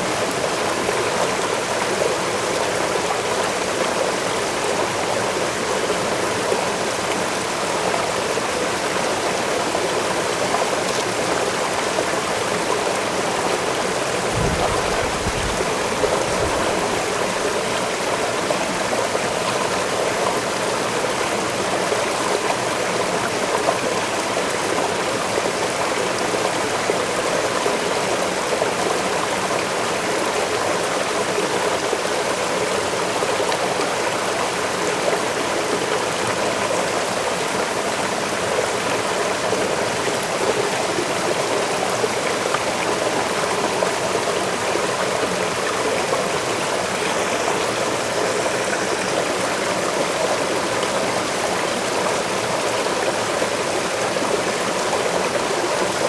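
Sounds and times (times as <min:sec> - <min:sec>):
waterfall splashing: 0:13.3 - 0:18.4.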